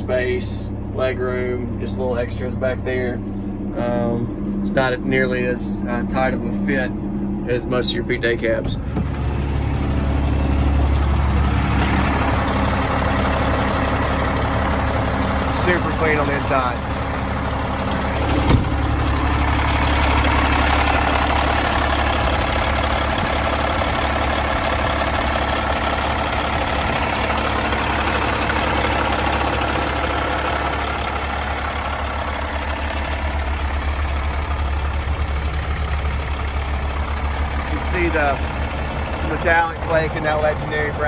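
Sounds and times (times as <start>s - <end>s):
diesel truck idling: 0.0s - 41.0s.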